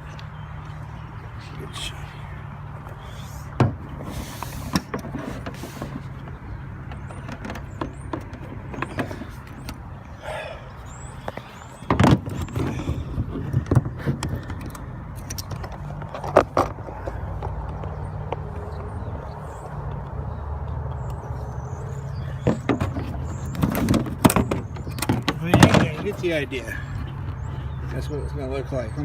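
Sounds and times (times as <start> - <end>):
knocks and clatters: 4.7 - 9.8, 22.4 - 26.2.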